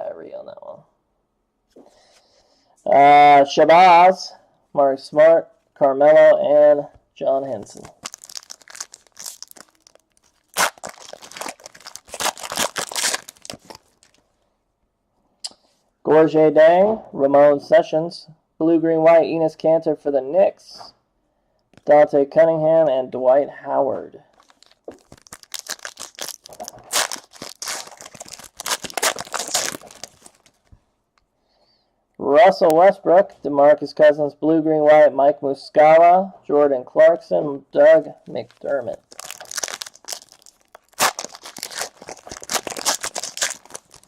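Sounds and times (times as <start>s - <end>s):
foil wrapper crinkling: 7.6s - 14.2s, 24.4s - 30.7s, 38.3s - 44.0s
foil wrapper tearing: 7.8s - 14.2s, 24.4s - 30.7s, 38.4s - 44.0s.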